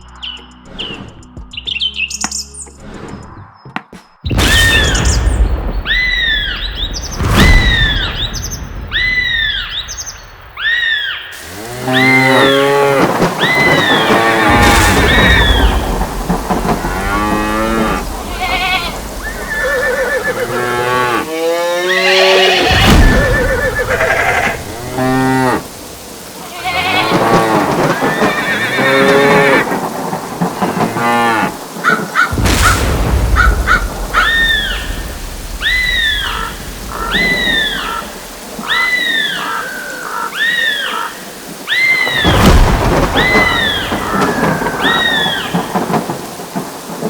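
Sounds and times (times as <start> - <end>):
thunder crash: 4.3 - 21.3, 22.6 - 39.4, 42.1 - 47.0
steady rain: 4.3 - 47.0
cattle mooing: 11.5 - 15.4, 16.7 - 25.7, 26.6 - 29.8, 30.8 - 31.6.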